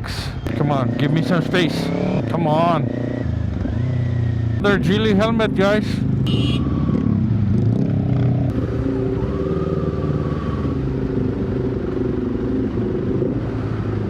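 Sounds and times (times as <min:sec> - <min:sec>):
motorcycle engine running: 0:00.4 - 0:14.0.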